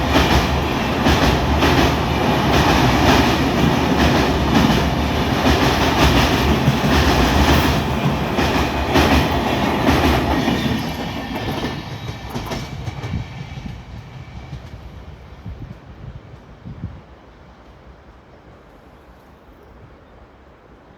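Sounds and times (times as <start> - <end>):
train wheels clattering on rails: 0.0 - 15.9.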